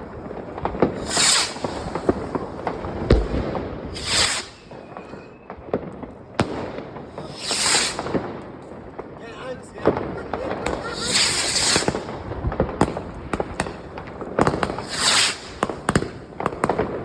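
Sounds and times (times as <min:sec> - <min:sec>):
fireworks and firecrackers banging: 0:00.0 - 0:17.0
short hissing bursts: 0:03.9 - 0:04.7, 0:07.2 - 0:08.0, 0:10.9 - 0:12.1, 0:14.7 - 0:16.0.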